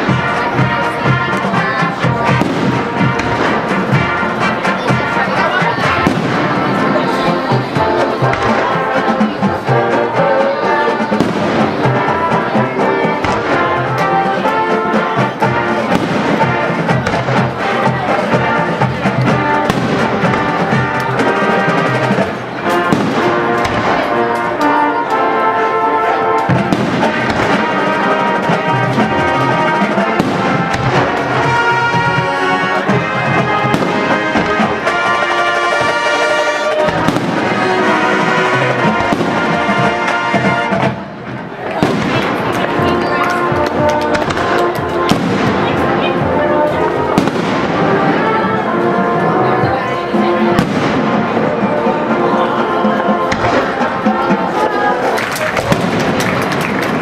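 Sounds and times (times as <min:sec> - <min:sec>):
brass music with held chords: 0:00.0 - 0:57.0
sharp bangs: 0:26.4 - 0:46.1, 0:46.8 - 0:48.5.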